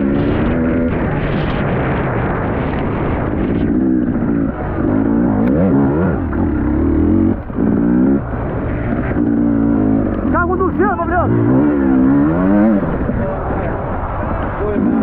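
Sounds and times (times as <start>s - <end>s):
motorbike engine revving: 0.0s - 15.0s.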